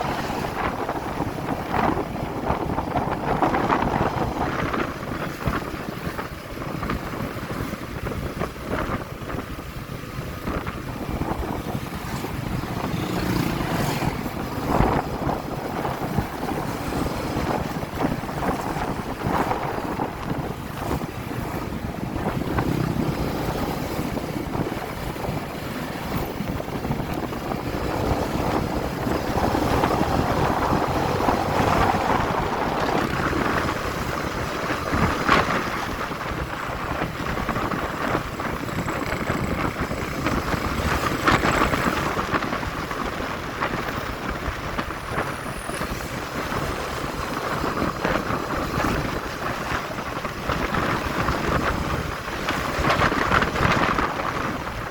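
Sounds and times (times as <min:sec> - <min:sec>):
road noise: 0:00.0 - 0:54.9
wind rushing over microphone: 0:00.0 - 0:54.9
motorcycle engine: 0:09.8 - 0:36.1.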